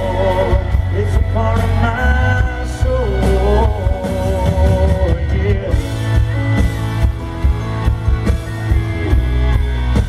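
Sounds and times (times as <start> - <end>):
man singing in country band: 0.0 - 7.0
live country band playing: 0.0 - 10.0.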